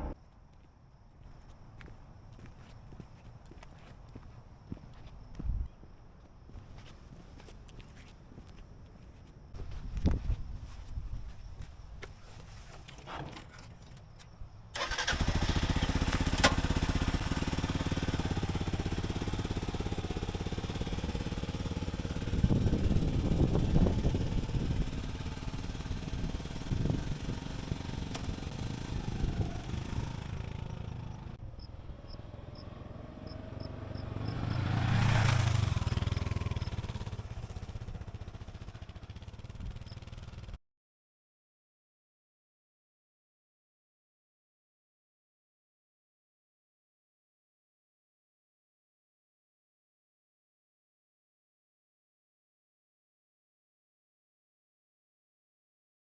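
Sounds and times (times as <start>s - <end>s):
motorcycle engine running: 14.8s - 40.6s.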